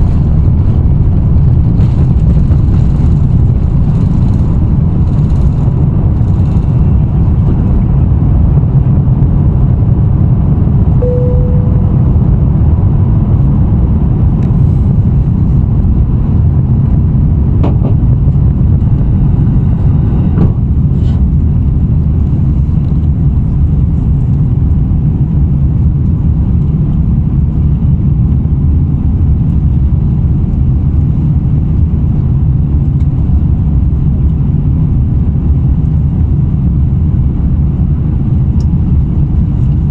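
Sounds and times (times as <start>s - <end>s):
jet engine rumble in cabin: 0.0s - 39.9s
brief tone: 11.0s - 12.3s.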